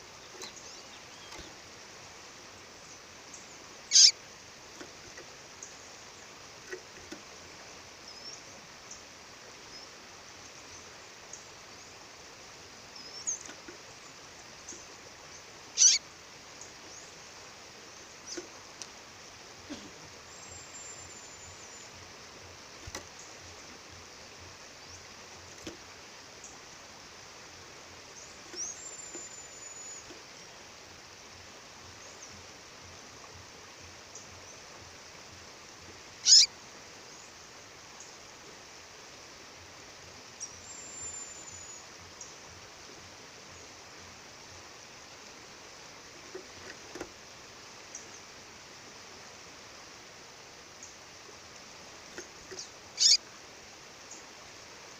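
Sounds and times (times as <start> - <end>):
bird calling: 3.9 - 4.2, 15.7 - 16.0, 36.2 - 36.5, 52.4 - 53.3.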